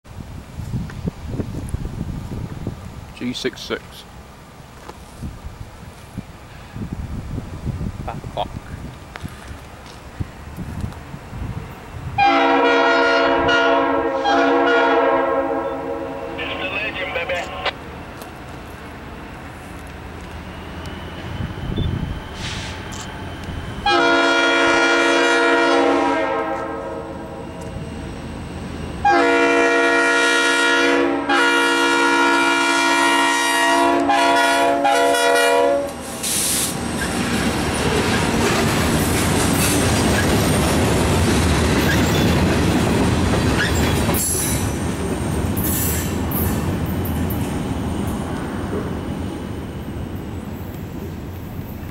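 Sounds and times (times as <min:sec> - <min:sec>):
locomotive air horn blasts: 0:12.2 - 0:16.4, 0:23.8 - 0:27.4, 0:29.0 - 0:36.4
steel wheels on rails: 0:35.8 - 0:51.9.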